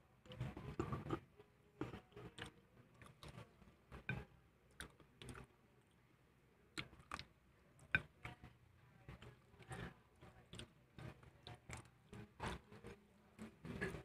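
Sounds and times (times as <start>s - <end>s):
wet chewing clicks and lip smacks: 4.7s - 5.5s, 6.7s - 8.4s.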